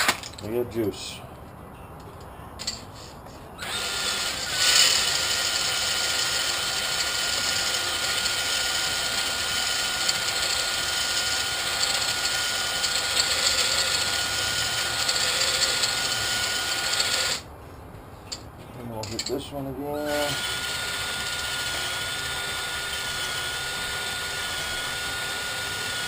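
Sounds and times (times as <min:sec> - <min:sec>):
cordless drill whining: 0:03.6 - 0:17.4, 0:19.9 - 0:26.0.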